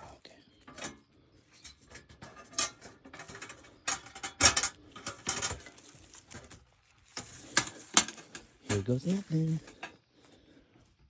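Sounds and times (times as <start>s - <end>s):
metal clanks: 0.7s - 10.0s
metal cage trap rattling: 1.7s - 5.8s.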